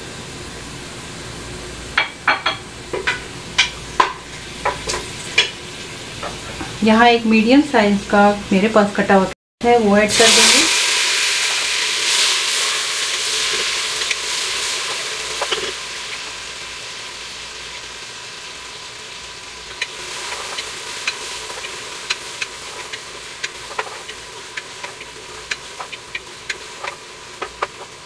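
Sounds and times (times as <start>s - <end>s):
vegetables sizzling in hot oil: 0.0s - 8.2s, 9.6s - 28.0s
wooden spoon scraping a pot: 19.8s - 28.0s.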